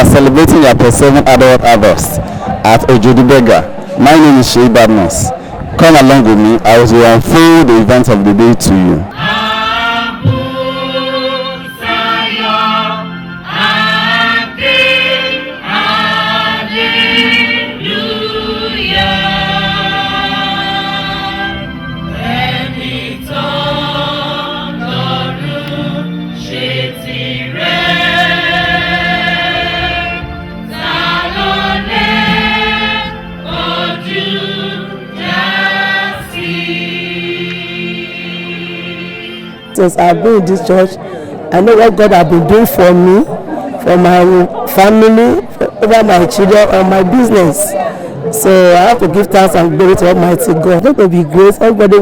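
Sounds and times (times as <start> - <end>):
church choir singing gospel: 8.6 - 50.7.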